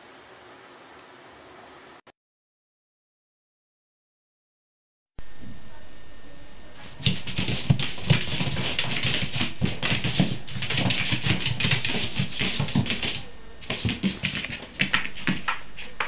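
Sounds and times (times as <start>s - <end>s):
cat claws skittering on hard floor: 7.0s - 16.0s.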